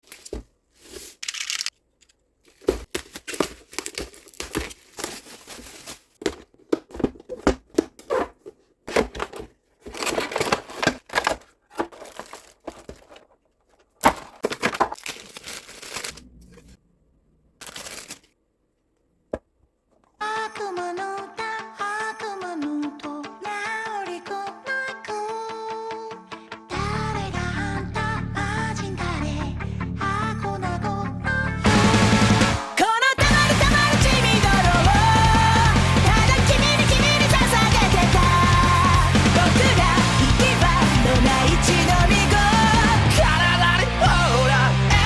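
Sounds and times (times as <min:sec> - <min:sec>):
packaging torn and crinkled: 0:02.5 - 0:06.2, 0:09.9 - 0:13.3, 0:14.0 - 0:16.2, 0:17.6 - 0:18.4.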